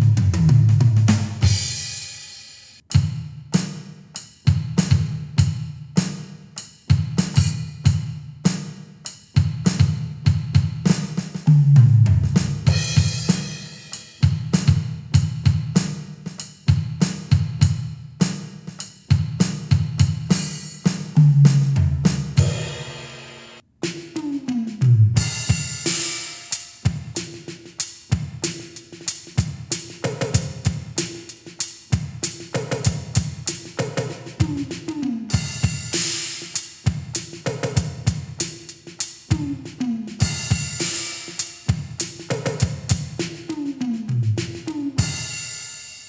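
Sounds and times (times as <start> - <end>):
electronic drum groove: 0.0 - 46.0
cymbal crashes: 12.6 - 14.4, 22.4 - 23.6, 25.2 - 27.0, 40.2 - 42.0.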